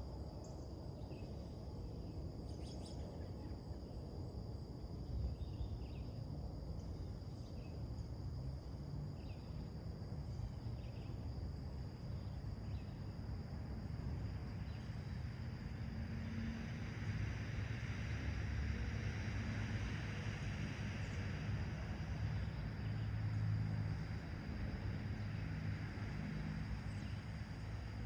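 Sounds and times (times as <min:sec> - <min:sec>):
high insect trill: 0:00.0 - 0:28.0
low background rumble: 0:20.3 - 0:28.0.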